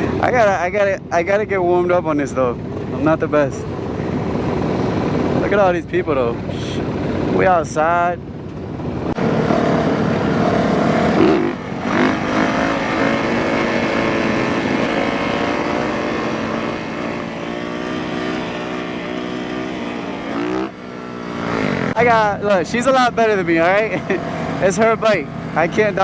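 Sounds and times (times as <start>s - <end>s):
dirt bike engine revving: 9.0s - 26.0s.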